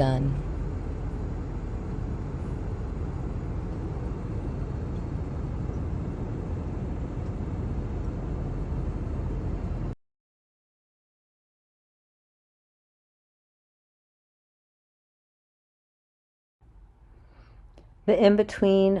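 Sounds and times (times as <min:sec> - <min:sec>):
low rumbling background noise: 0:00.0 - 0:10.0, 0:16.6 - 0:19.0.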